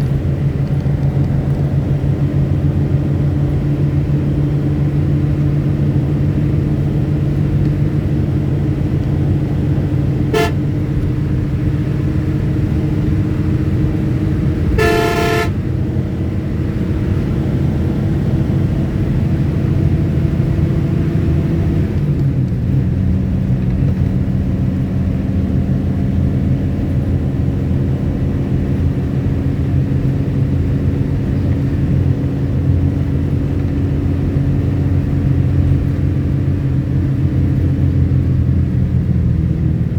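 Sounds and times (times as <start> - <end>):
vehicle engine running: 0.0 - 39.9
horn toots: 10.2 - 11.2, 14.6 - 15.7.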